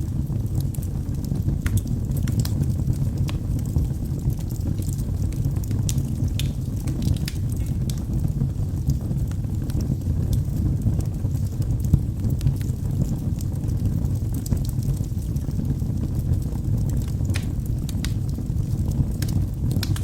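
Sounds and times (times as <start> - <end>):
logs burning in a fireplace: 0.0 - 20.0.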